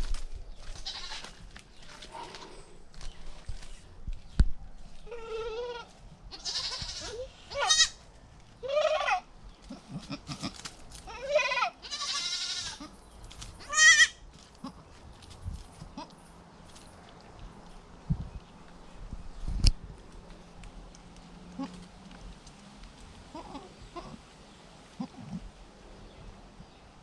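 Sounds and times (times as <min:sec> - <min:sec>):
goats bleating: 0:05.1 - 0:08.0, 0:08.6 - 0:10.5, 0:11.1 - 0:13.0, 0:13.6 - 0:14.8, 0:23.3 - 0:24.2.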